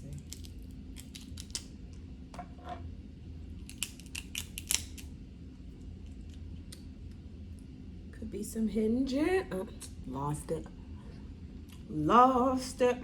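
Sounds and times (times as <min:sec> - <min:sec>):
crab shell cracking: 0:00.1 - 0:01.8, 0:03.6 - 0:05.1.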